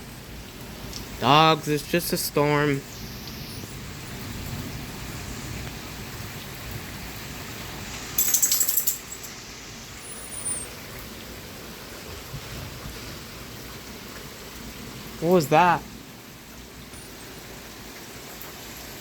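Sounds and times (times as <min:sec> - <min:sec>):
rain and wind hiss: 0:00.0 - 0:19.0.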